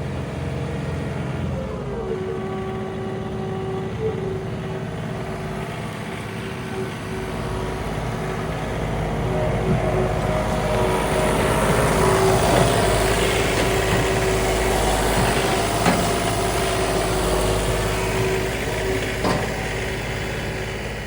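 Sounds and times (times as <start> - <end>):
tractor diesel engine running: 0.0 - 21.0
stump grinder cutter knocks: 11.7 - 16.9, 18.9 - 20.0.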